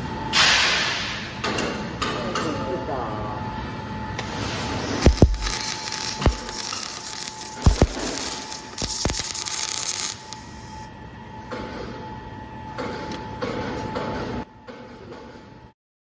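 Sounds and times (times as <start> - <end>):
arc welding crackling hiss: 4.3 - 10.9.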